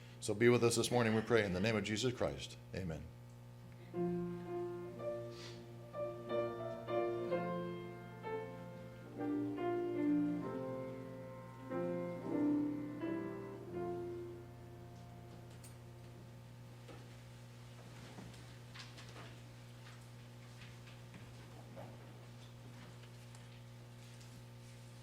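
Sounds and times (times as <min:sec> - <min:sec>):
low electrical hum: 0:00.0 - 0:25.0
slow piano notes and chords: 0:03.9 - 0:16.3.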